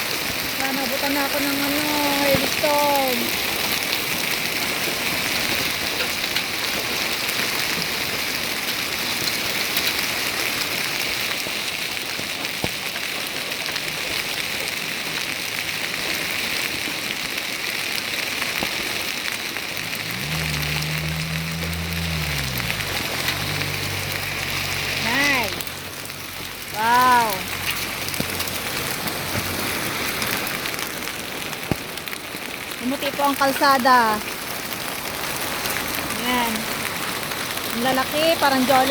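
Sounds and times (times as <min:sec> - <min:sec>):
hail and rain pelting: 0:00.0 - 0:38.9
vehicle engine passing: 0:19.6 - 0:30.4.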